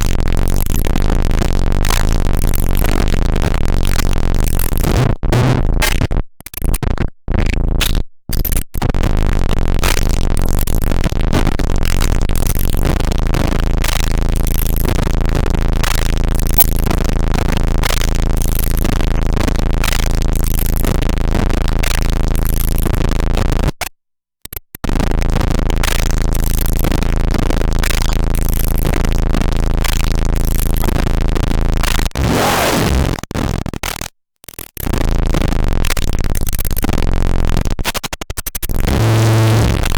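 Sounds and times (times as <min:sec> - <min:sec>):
distorted drum machine beat: 0:38.8 - 0:39.9.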